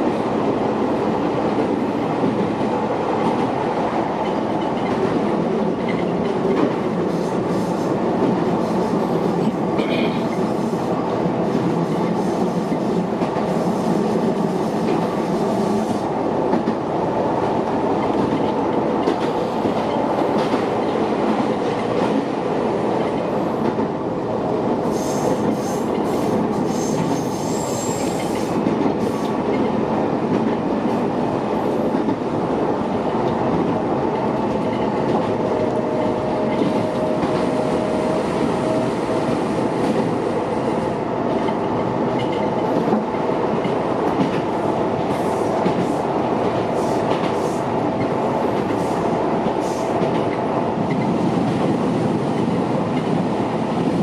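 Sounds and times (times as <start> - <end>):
electric train rumbling on rails: 0.0 - 54.0.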